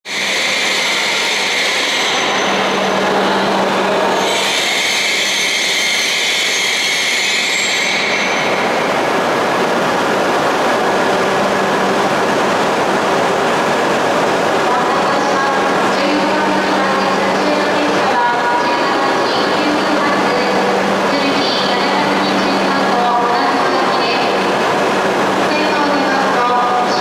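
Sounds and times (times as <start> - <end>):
train rushing past: 0.0 - 27.0.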